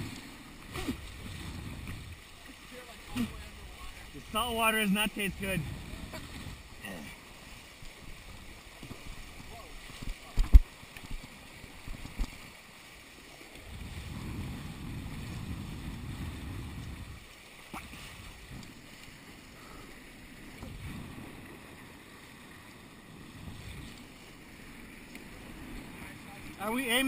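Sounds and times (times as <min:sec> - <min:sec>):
wind buffeting microphone: 0:00.0 - 0:02.2, 0:05.3 - 0:06.7, 0:13.6 - 0:18.7, 0:20.6 - 0:27.0
water rushing past hulls: 0:00.0 - 0:27.0.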